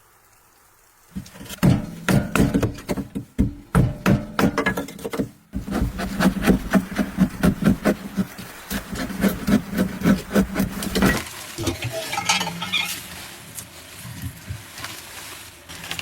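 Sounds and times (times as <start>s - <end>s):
rapid knocks: 1.2s - 11.2s.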